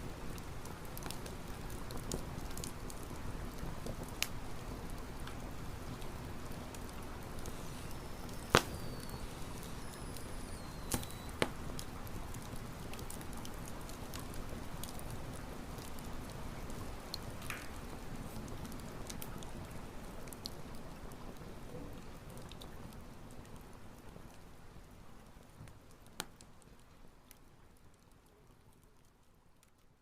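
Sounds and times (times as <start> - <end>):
campfire crackling: 0.0 - 30.0
burning wood popping: 0.3 - 20.6
thin falling whistles: 7.4 - 11.4.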